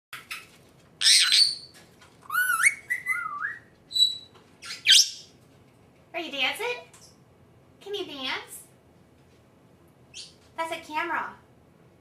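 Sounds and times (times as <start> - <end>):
parrot harsh squawk: 0.2 - 1.7
parrot chirps: 0.2 - 5.4, 10.1 - 10.4
parrot whistling: 1.0 - 1.7, 2.3 - 5.3.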